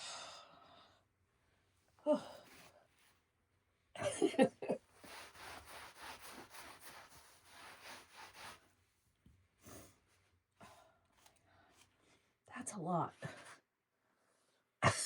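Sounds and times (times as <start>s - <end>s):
brush rasping through cat fur: 4.9s - 8.7s.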